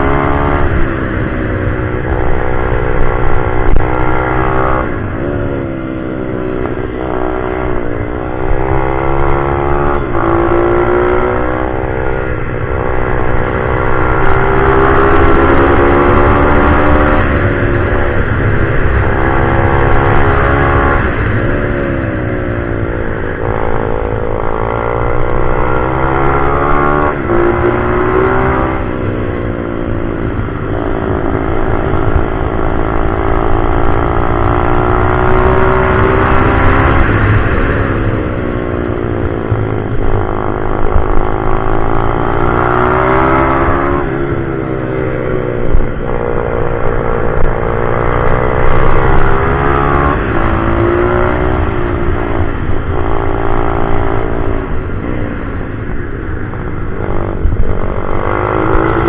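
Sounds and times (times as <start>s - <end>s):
motorbike engine revving through gears: 0.0s - 59.0s.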